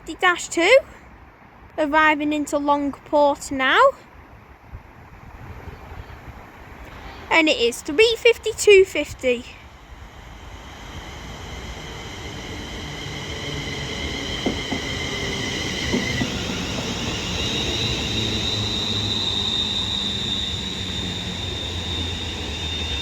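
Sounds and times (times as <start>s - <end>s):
electric train whining: 8.9s - 23.0s
low hum: 9.5s - 23.0s.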